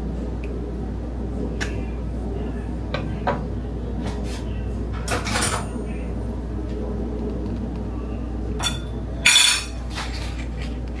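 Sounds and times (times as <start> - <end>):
steady low hum: 0.0 - 11.0
kitchenware clinking: 5.0 - 5.8, 8.6 - 10.6.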